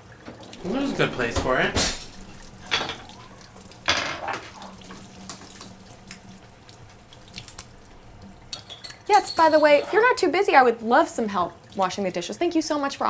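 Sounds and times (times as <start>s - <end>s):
tap water running and splashing: 0.0s - 13.0s
light knocks of dishes: 0.6s - 5.5s.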